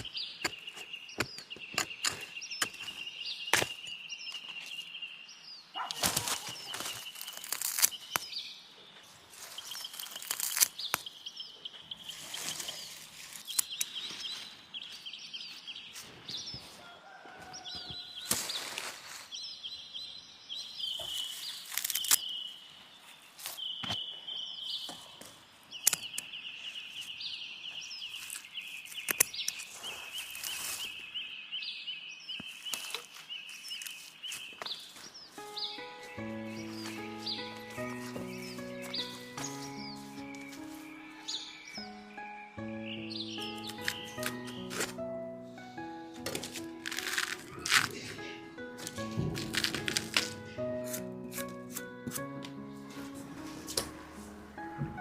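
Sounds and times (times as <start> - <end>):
sharp snaps and crackles: 5.8 - 8.5, 9.3 - 11.2, 12.1 - 14.3, 18.2 - 19.1, 21.0 - 22.5, 25.8 - 26.4, 28.0 - 31.0, 32.4 - 40.8, 43.4 - 52.6
high trill of birds or insects: 32.5 - 44.8.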